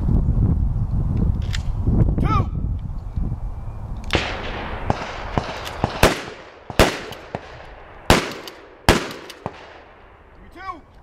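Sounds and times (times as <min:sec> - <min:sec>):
shotgun blasts echoing: 0:04.1 - 0:10.3.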